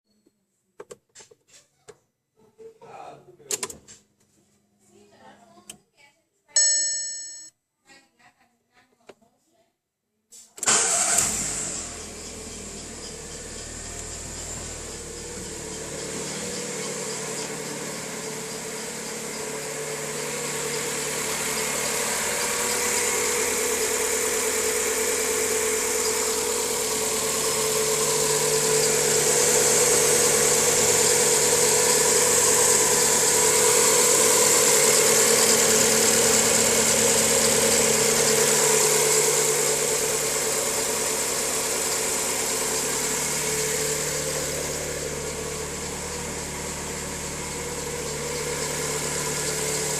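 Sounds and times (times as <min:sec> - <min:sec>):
car engine idling: 0:10.6 - 0:49.9.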